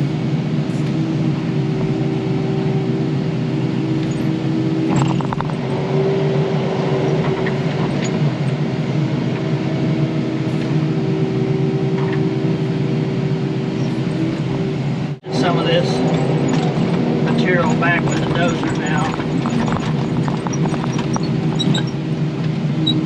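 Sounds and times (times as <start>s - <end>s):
diesel engine running: 0.0s - 23.0s
metallic clatter: 4.9s - 5.6s, 16.0s - 22.0s.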